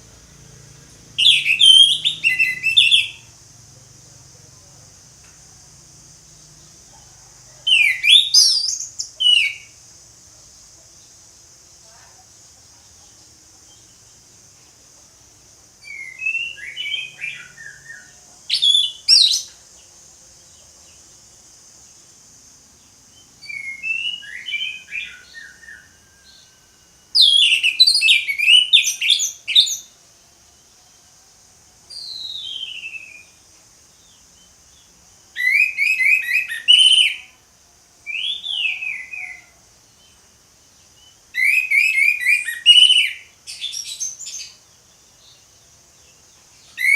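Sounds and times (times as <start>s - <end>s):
thrush singing whistled notes: 0.0s - 3.7s, 7.6s - 9.9s, 15.8s - 19.6s, 23.1s - 31.0s, 31.9s - 37.4s, 38.0s - 46.9s
steady high hiss: 0.0s - 46.9s.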